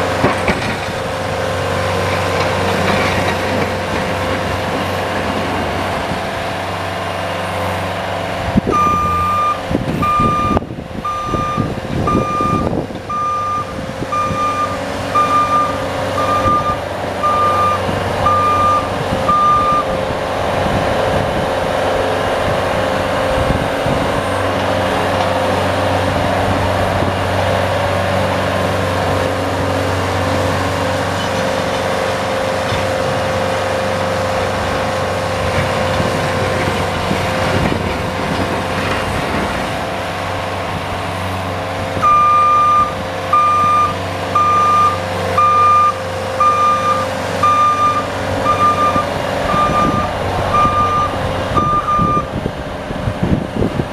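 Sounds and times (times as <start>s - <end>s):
vehicle engine whining: 0.0s - 53.9s
reverse warning beeper: 8.7s - 19.9s, 42.0s - 52.3s.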